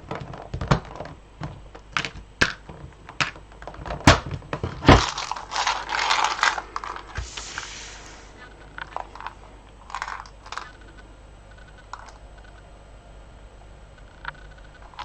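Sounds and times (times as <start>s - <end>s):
beads clattering: 4.9s - 7.2s.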